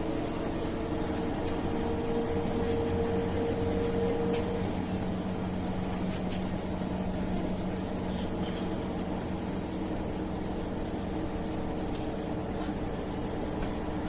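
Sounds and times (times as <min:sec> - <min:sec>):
bus engine hum and rumble: 0:00.0 - 0:14.0.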